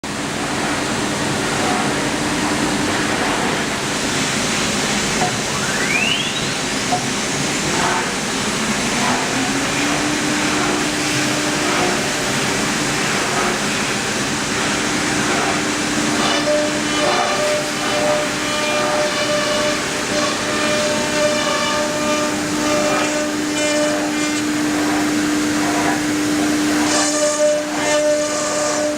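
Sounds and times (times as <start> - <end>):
router running with hiss and hum: 0.1 - 28.9
spindle whine: 4.5 - 25.8.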